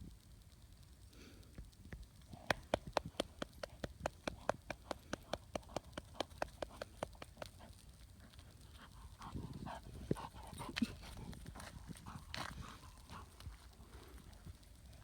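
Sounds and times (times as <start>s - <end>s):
dog footfalls on hard ground: 2.4s - 7.6s.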